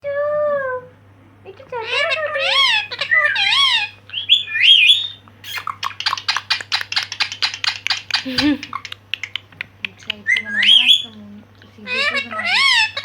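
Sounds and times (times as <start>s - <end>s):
parrot whistled calls: 1.8s - 8.3s, 10.3s - 11.2s, 11.9s - 13.0s
parrot sharp chirps: 1.8s - 9.0s, 10.3s - 11.2s, 11.9s - 13.0s.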